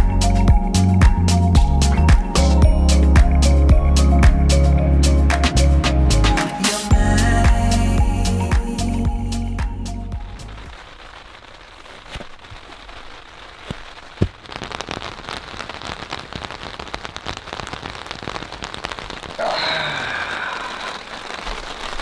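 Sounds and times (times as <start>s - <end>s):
rain pattering on tent fabric: 10.2s - 22.0s.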